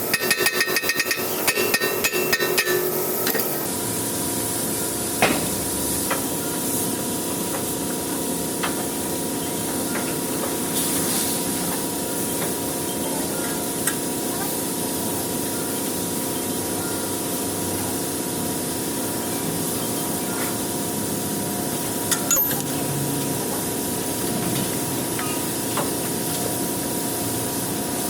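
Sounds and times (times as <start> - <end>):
steady mechanical hum: 0.0 - 28.0
metal hammer blows ringing: 0.1 - 3.0.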